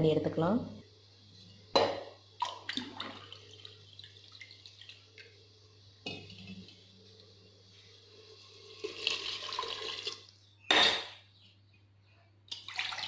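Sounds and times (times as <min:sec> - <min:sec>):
water pouring into a pot: 0:00.9 - 0:10.4, 0:12.5 - 0:13.0.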